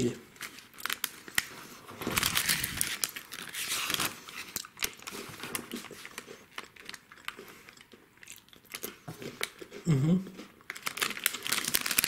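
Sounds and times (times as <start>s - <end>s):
biscuit stick crunching: 4.4s - 12.0s.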